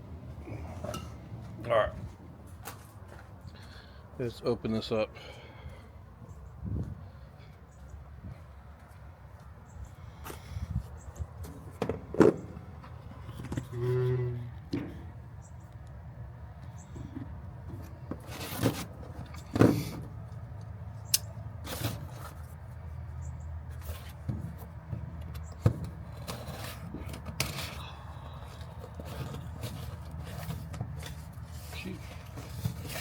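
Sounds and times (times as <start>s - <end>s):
cardboard and plastic rustling: 17.7s - 20.1s, 23.7s - 33.0s.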